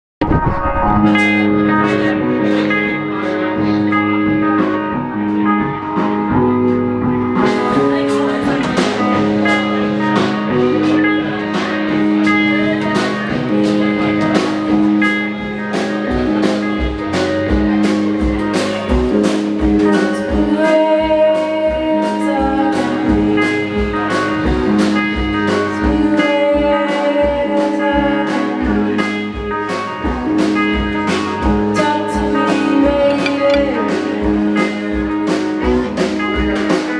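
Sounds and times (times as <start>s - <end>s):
blues band playing: 0.2s - 36.9s
drum strokes: 33.0s - 34.0s.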